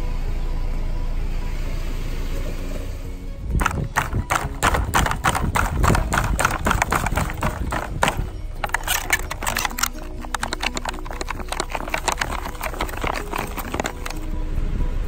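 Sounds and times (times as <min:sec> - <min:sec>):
plastic packaging crackling: 0:03.6 - 0:14.3.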